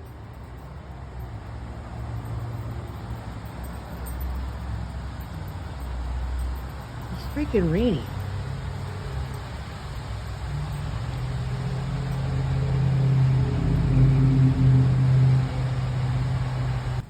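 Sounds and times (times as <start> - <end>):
steady low hum: 2.6 - 17.0
heavy rain falling: 6.0 - 17.0.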